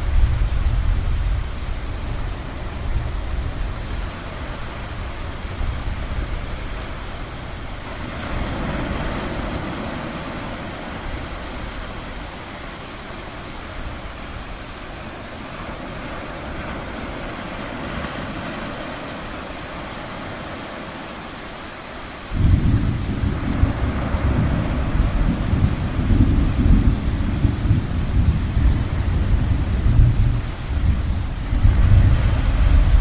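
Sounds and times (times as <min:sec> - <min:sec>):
ocean waves: 0:00.0 - 0:33.0
thunder rumble: 0:22.2 - 0:33.0.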